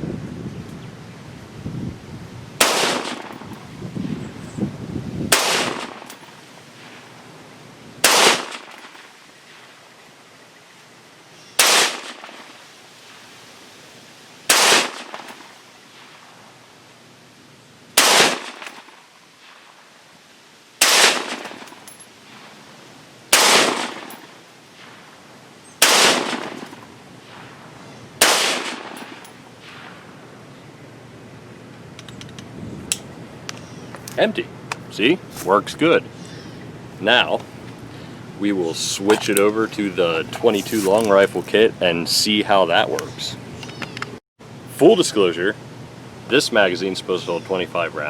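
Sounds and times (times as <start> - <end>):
rifle shots with echo: 2.6 - 3.5, 5.3 - 6.2, 8.0 - 8.9, 11.6 - 12.5, 14.5 - 15.6, 18.0 - 19.0, 20.8 - 21.8, 23.3 - 24.3, 25.8 - 27.4, 28.2 - 29.9.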